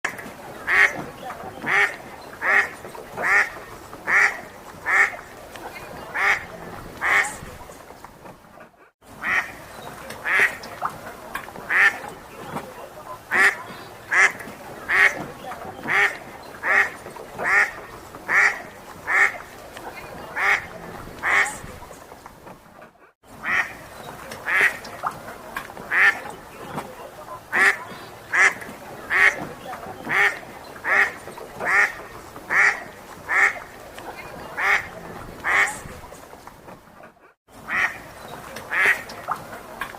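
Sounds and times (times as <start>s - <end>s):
duck quacking: 0.6s - 5.3s, 5.9s - 7.5s, 9.2s - 9.6s, 10.2s - 10.8s, 11.7s - 21.7s, 23.4s - 23.8s, 24.4s - 24.9s, 25.9s - 35.9s, 37.6s - 38.1s, 38.7s - 39.4s.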